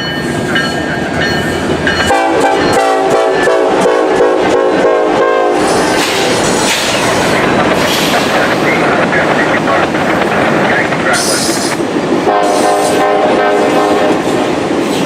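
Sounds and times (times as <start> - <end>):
train rumbling by: 0.0 - 15.0
locomotive air horn blowing: 2.1 - 5.8, 12.3 - 14.3.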